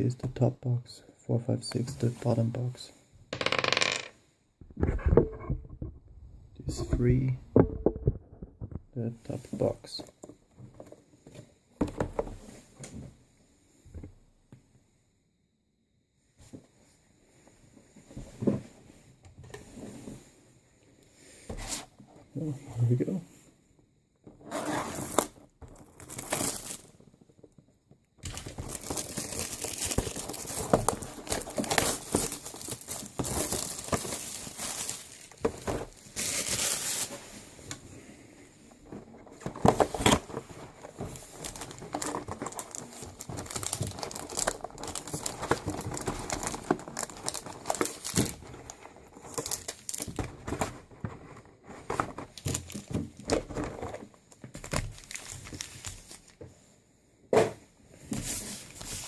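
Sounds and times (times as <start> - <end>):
packaging crinkling and tearing: 25.0 - 27.0, 28.2 - 37.2, 39.5 - 50.7, 52.0 - 56.4.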